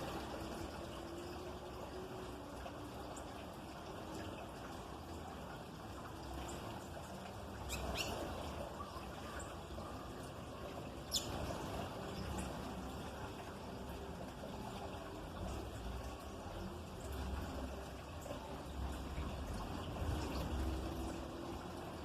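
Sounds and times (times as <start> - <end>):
high bird chirps: 7.6 - 8.3, 11.1 - 11.4.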